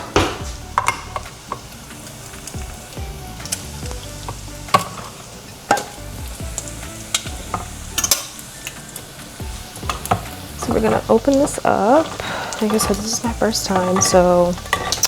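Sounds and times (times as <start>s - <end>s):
soft background music: 0.0s - 15.0s
can opener scraping and grinding: 9.4s - 15.0s.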